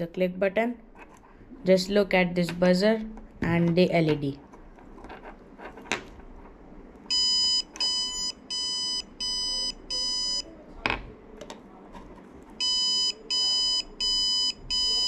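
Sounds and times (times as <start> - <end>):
shrill buzzer beeps: 7.1 - 10.4, 12.6 - 15.0.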